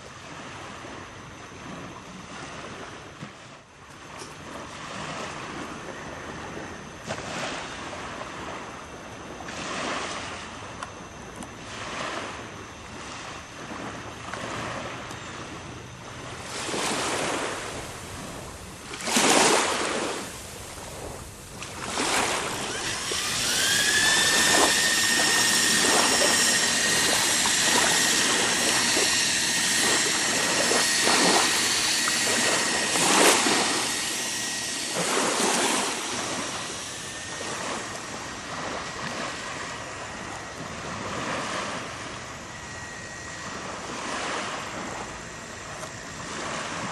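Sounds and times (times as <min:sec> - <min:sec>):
electric drill whine: 0:03.8 - 0:46.9
wind on microphone: 0:16.3 - 0:42.0
water splashing: 0:16.5 - 0:39.3.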